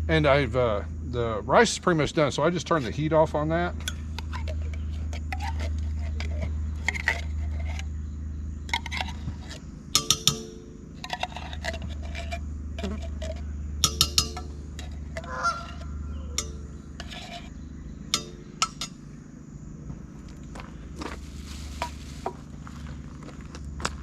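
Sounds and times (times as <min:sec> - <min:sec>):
steady low hum: 0:00.0 - 0:24.0
utensils clinking on cookware: 0:08.7 - 0:17.5, 0:18.1 - 0:19.0
honking calls: 0:14.1 - 0:19.2.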